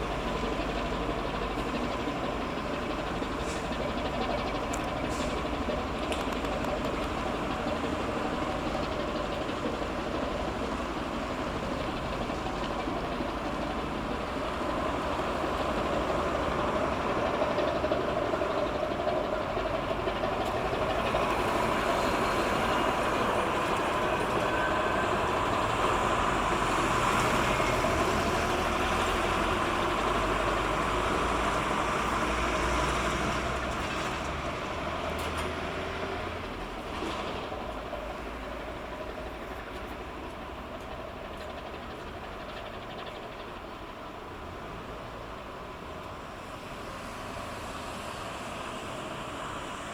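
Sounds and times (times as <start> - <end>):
ship engine rumble: 0.0 - 32.7.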